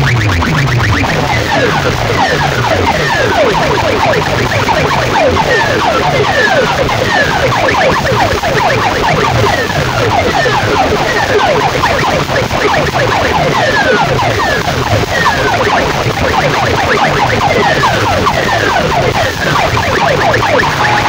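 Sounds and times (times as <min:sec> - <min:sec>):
siren-like electronic sweeps: 0:00.0 - 0:21.0.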